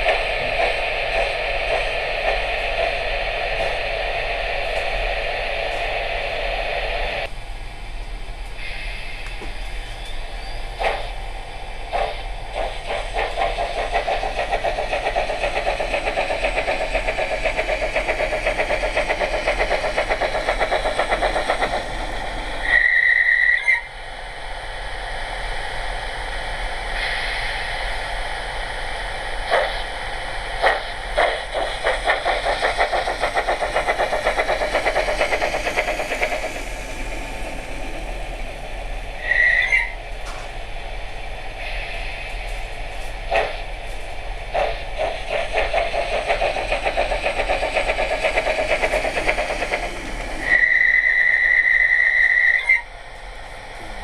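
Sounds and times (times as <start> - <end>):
steam locomotive chuffs: 0.0 - 54.0
locomotive whistle blast: 22.7 - 23.9, 39.2 - 40.0, 50.5 - 52.9.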